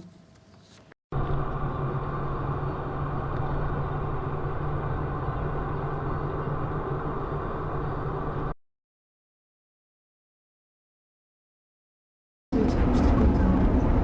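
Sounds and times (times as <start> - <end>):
vehicle engine and road noise: 0.3 - 8.6, 12.5 - 14.0.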